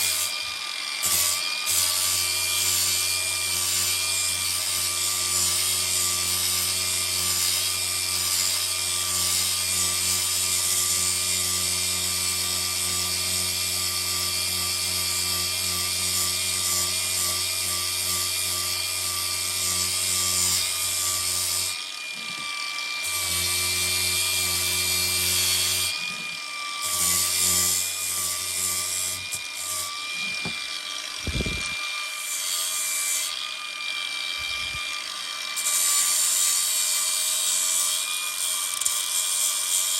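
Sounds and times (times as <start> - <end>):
electric power tool running: 0.0 - 39.9.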